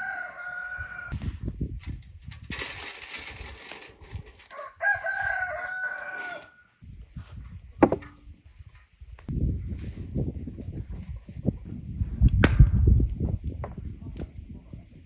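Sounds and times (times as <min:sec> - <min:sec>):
rooster crowing: 0:00.0 - 0:01.2, 0:04.5 - 0:06.7.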